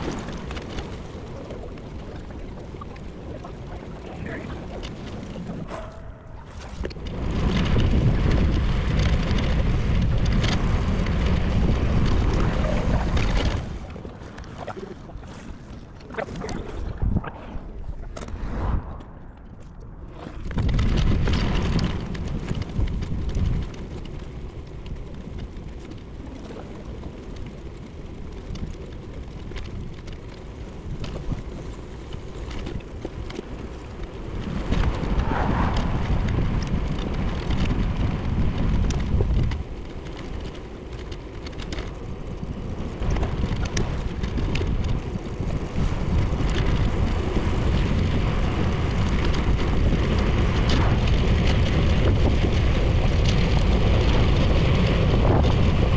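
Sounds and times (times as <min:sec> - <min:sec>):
wind buffeting microphone: 0:00.0 - 0:55.9
small ticks: 0:20.7 - 0:35.1, 0:35.7 - 0:55.8.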